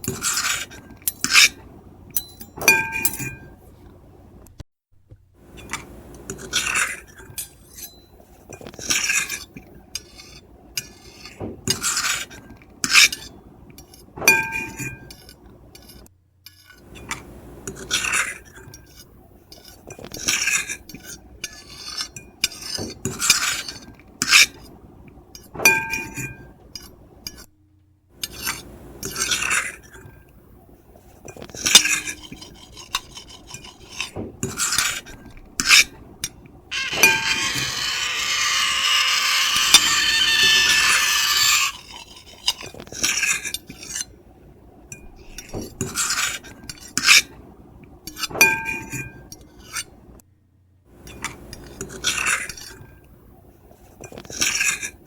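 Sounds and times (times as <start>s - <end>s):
fork and knife scraping a plate: 0.0s - 1.6s, 5.6s - 24.7s, 28.2s - 30.2s, 31.2s - 36.0s, 36.7s - 44.2s, 45.2s - 47.3s, 48.1s - 50.0s, 51.1s - 52.9s, 54.0s - 55.0s
plate ringing: 2.2s - 3.6s, 14.3s - 15.1s, 36.7s - 41.8s.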